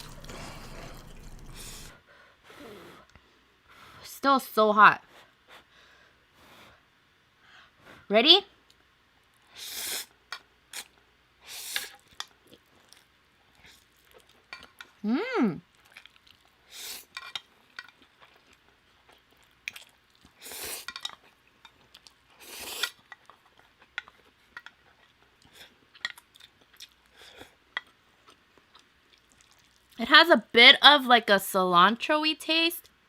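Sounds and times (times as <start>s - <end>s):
chewing: 0.0s - 2.0s, 11.8s - 15.0s, 15.7s - 30.0s
noodles being slurped: 0.0s - 2.0s.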